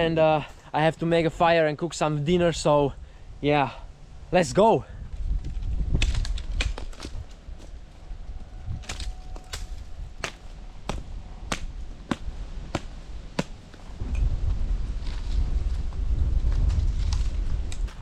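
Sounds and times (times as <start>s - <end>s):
blade chopping wood: 8.8s - 13.9s.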